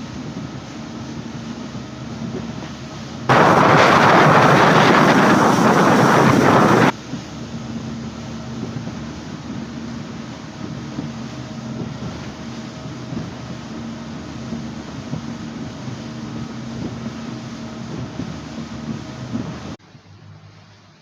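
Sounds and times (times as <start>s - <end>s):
boat engine humming: 0.0s - 21.0s
loud rushing noise: 3.3s - 6.9s.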